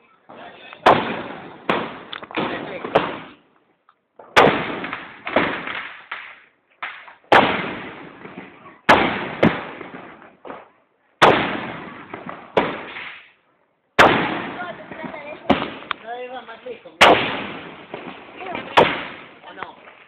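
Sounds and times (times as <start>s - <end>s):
fireworks bangs: 0.3s - 3.4s, 4.2s - 13.4s, 14.0s - 20.0s.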